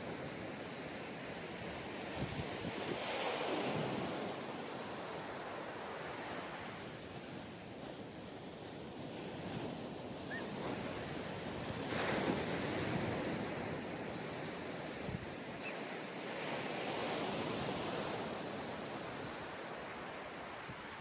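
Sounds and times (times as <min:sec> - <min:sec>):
waves washing up a beach: 0:00.0 - 0:21.0
wind on microphone: 0:01.7 - 0:04.2.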